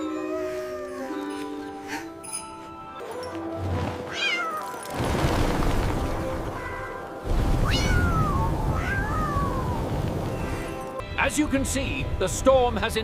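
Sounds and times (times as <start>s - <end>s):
background music: 0.0s - 13.0s
cartoon kitten meowing: 7.6s - 9.8s.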